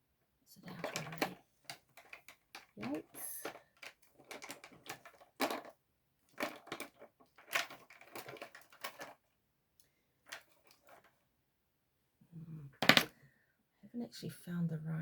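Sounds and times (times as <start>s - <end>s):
crinkling and clattering handling: 0.6s - 9.4s, 10.2s - 11.2s.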